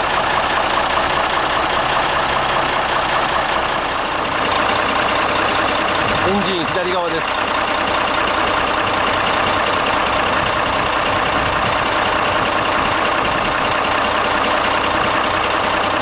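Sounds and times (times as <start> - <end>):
truck diesel engine idling: 0.0 - 16.0.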